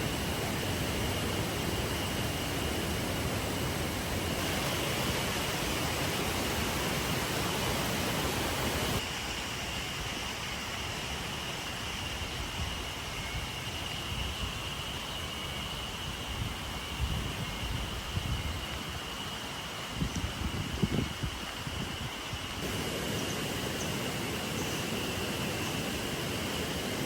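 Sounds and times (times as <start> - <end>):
river water rushing: 0.0 - 9.0, 22.6 - 27.0.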